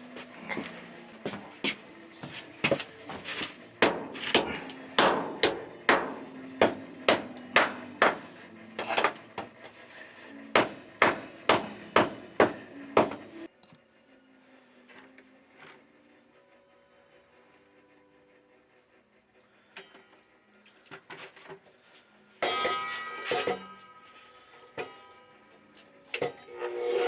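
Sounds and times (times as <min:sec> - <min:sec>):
hand hammer blows: 0:02.6 - 0:13.5.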